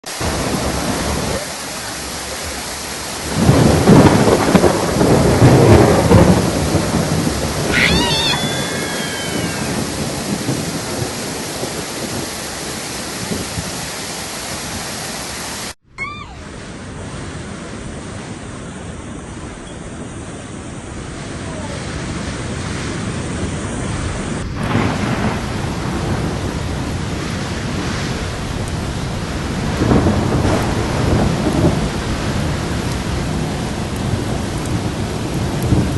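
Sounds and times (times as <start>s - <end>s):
heavy rain hissing: 0.0s - 35.9s
thunder rumbling: 0.1s - 15.0s, 16.3s - 35.9s.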